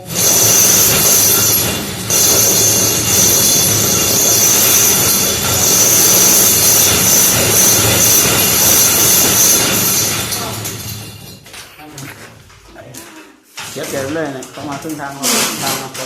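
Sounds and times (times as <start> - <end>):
power drill boring into brick: 0.0 - 10.7.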